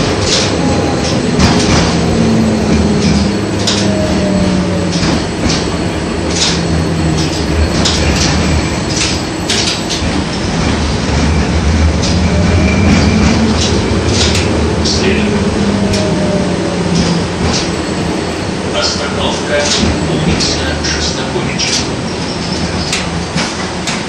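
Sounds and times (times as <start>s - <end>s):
low motor hum: 0.0s - 18.7s
tram rolling rumble: 0.0s - 24.0s.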